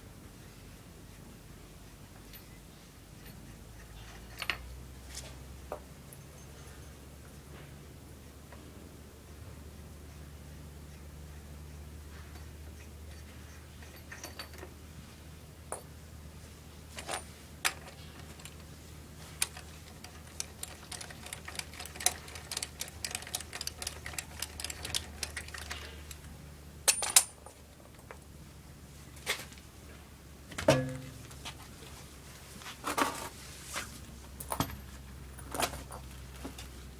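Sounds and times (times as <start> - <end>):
steady low hum: 0.0 - 32.8
metallic tool clicks and clinks: 17.0 - 18.7, 19.4 - 26.2, 26.9 - 27.5.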